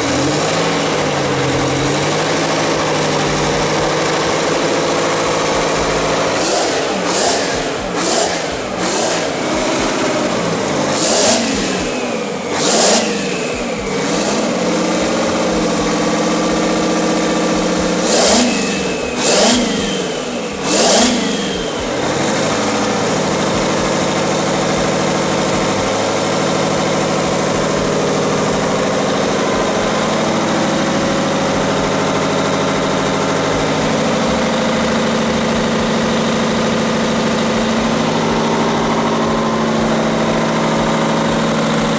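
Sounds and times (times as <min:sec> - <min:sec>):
old engine revving: 0:00.0 - 0:41.9.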